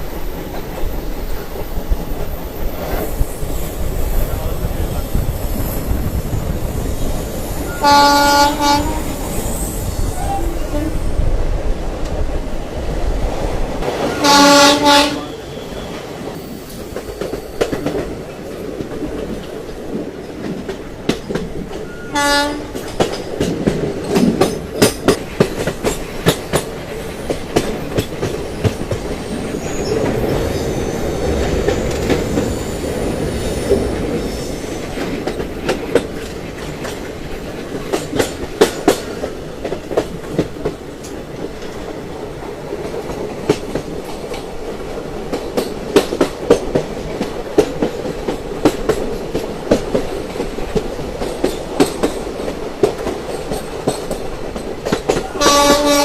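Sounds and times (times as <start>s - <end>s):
train rumble: 0.0s - 56.0s
high-pitched wheel squeal: 4.8s - 11.2s, 28.5s - 34.8s
train wheels clacking over rail joints: 11.9s - 56.0s.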